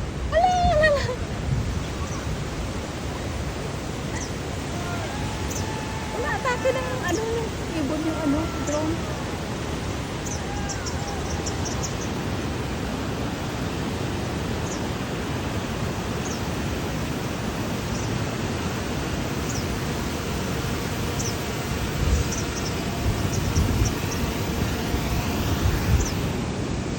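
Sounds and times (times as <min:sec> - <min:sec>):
wind on microphone: 0:00.0 - 0:26.9.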